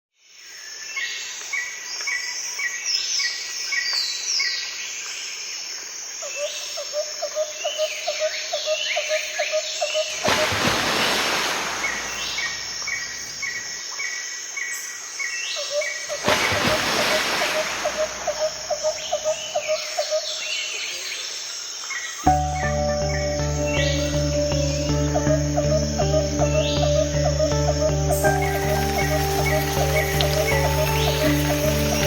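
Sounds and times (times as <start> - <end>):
insects calling: 0.4 - 32.0
birds chirping: 15.8 - 21.3, 22.2 - 32.0
falling whistled bird notes: 22.3 - 32.0.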